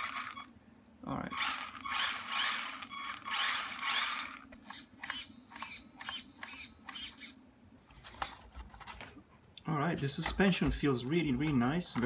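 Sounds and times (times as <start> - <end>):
rc car motor whirring: 0.0 - 0.5, 1.3 - 7.4.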